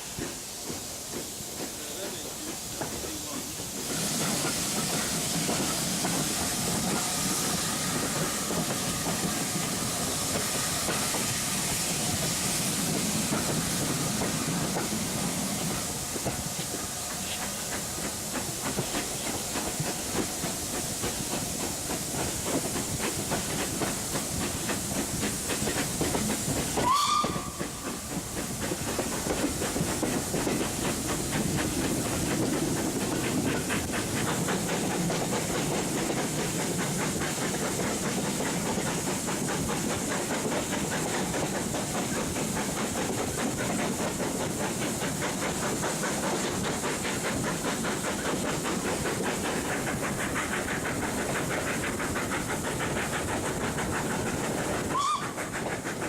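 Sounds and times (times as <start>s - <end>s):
train wind and wheel noise: 0.0s - 56.0s
rail joints clicking: 0.1s - 56.0s.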